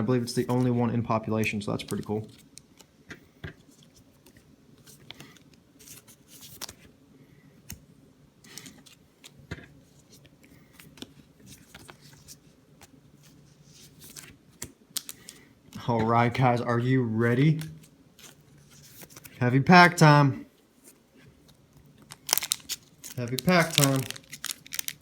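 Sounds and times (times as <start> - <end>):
trading cards shuffling: 3.5 - 6.9, 8.4 - 16.5, 17.3 - 19.4, 20.8 - 25.0
packaging rustling: 10.8 - 15.8, 21.4 - 25.0.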